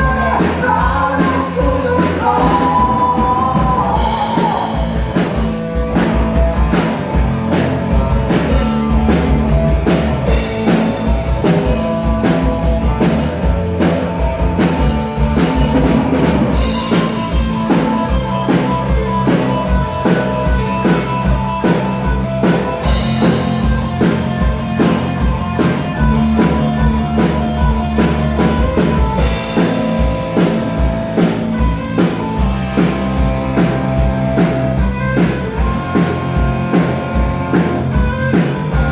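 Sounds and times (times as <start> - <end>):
drum kit beating: 0.0 - 38.9
electric guitar: 0.0 - 38.9
live rock band playing: 0.0 - 38.9.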